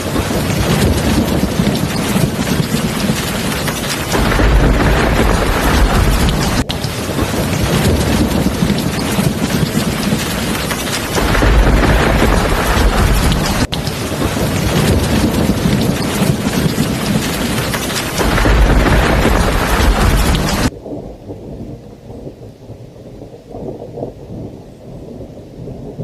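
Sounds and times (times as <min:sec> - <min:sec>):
heavy rain hissing: 0:00.0 - 0:20.7
low rolls of thunder: 0:00.0 - 0:26.0.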